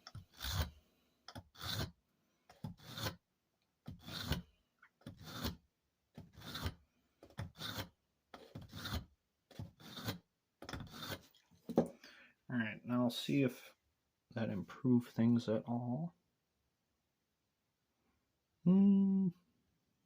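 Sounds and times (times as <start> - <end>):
hatchet blade on ceramic sharpener: 2.6 - 3.2, 7.4 - 11.2.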